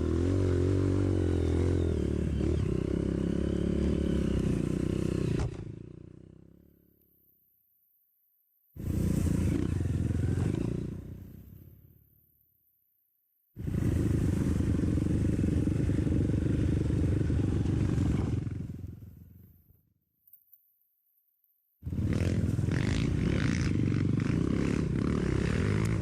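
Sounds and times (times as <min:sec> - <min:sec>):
dirt bike engine running: 0:13.6 - 0:19.6, 0:21.9 - 0:26.0.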